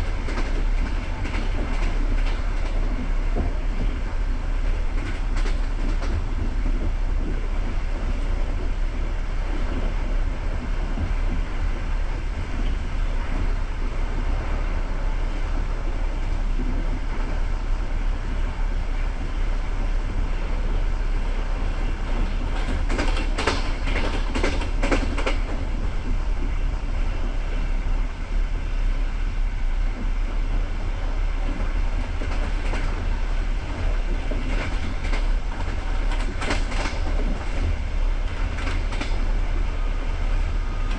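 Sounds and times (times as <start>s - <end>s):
train wheels rumbling: 0.0s - 40.9s.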